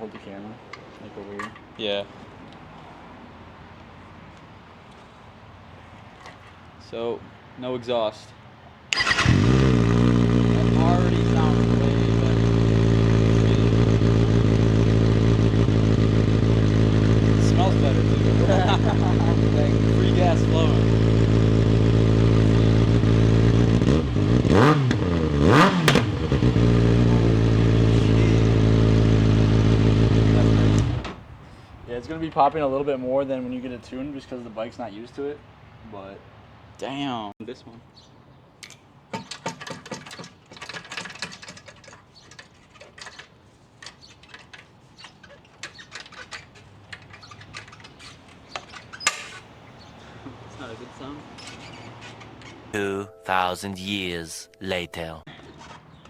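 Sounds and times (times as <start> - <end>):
exhaust pops: 8.9 - 34.2, 39.1 - 52.8
motorcycle engine idling and revving: 9.0 - 32.4, 39.1 - 52.7
hand tools clicking on metal: 38.6 - 49.5.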